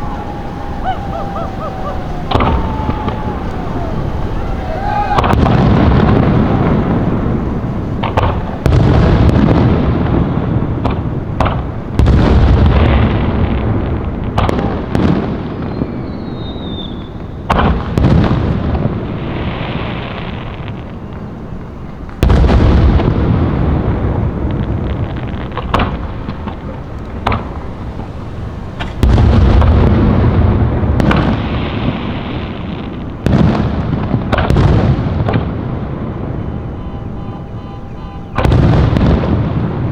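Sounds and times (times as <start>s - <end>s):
short falling whistle: 0.0s - 7.1s, 15.7s - 17.2s, 36.3s - 38.9s
fireworks bangs with rolling echo: 0.0s - 39.9s.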